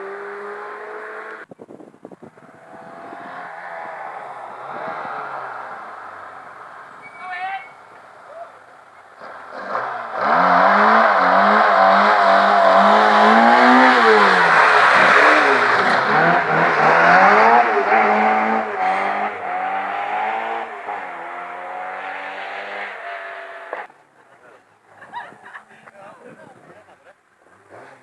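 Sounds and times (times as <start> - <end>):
rally car engine at high revs: 0.0 - 1.4, 9.2 - 23.9, 27.6 - 28.0.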